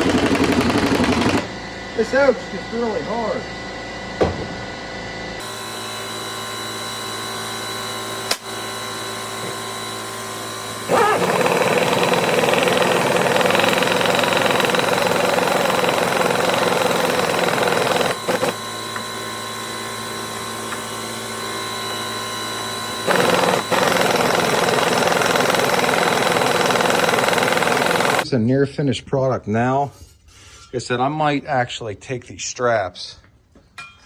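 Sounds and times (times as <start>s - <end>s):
pneumatic impact wrench rattling: 0.0s - 1.5s, 10.9s - 18.6s, 23.0s - 28.2s.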